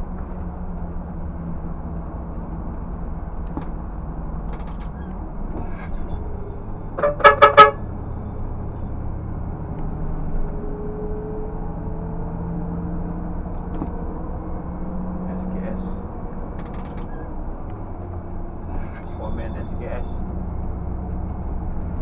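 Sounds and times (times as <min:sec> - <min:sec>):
truck engine running: 0:00.0 - 0:22.0
short horn toots: 0:07.0 - 0:07.8.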